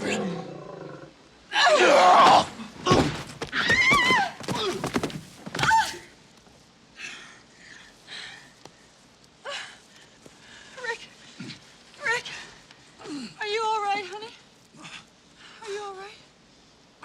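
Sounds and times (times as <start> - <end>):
heavy thuds: 2.2 - 6.0.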